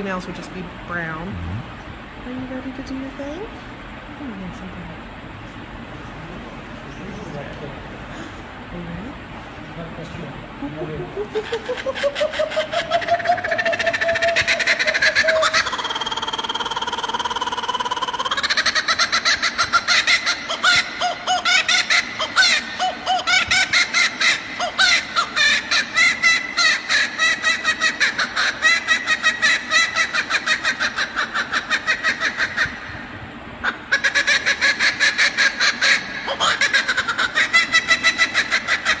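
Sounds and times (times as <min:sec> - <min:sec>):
kookaburra laughing call: 0:10.6 - 0:39.0.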